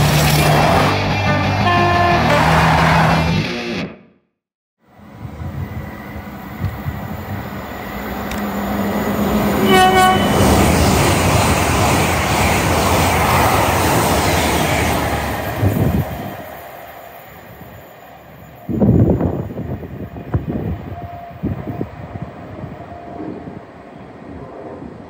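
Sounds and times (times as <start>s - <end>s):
train rushing past: 0.0s - 3.4s, 4.8s - 25.0s
train horn blast: 1.1s - 3.1s, 9.4s - 10.9s.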